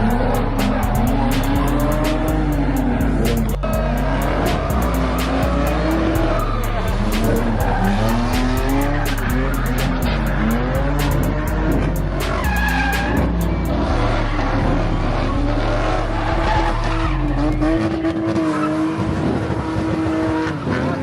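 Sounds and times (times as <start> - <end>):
tyre squeal: 0.0 - 14.5
car engine revving: 0.0 - 21.0
hip-hop music with deep bass: 0.0 - 21.0.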